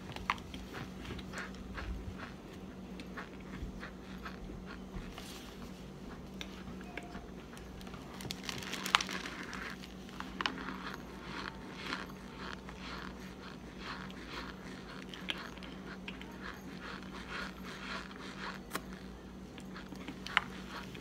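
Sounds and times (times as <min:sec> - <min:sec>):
chewing and crunching: 0:00.0 - 0:21.0.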